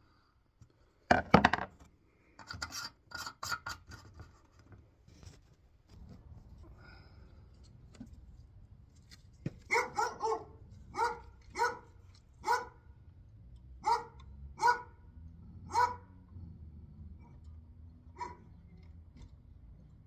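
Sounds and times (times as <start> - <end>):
dog barking: 9.7 - 12.9, 13.8 - 15.0, 15.6 - 16.2, 18.1 - 18.5.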